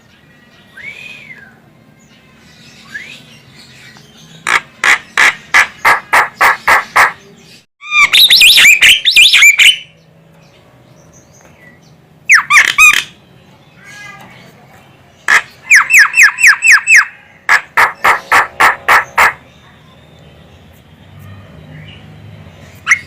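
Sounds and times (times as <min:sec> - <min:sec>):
bird harsh repeated notes: 0:04.4 - 0:07.2, 0:07.8 - 0:09.9, 0:12.2 - 0:13.2, 0:15.2 - 0:19.7, 0:22.8 - 0:23.0
bird warbling whistles: 0:07.8 - 0:09.8, 0:15.7 - 0:17.2.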